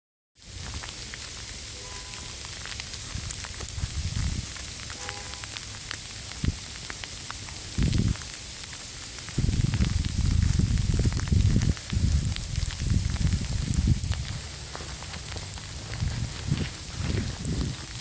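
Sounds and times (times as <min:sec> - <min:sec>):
falling snow or sleet: 0:00.4 - 0:18.0
wind: 0:00.4 - 0:18.0
wind thumps on microphone: 0:03.0 - 0:04.6, 0:06.4 - 0:06.6, 0:07.7 - 0:08.2, 0:09.3 - 0:18.0.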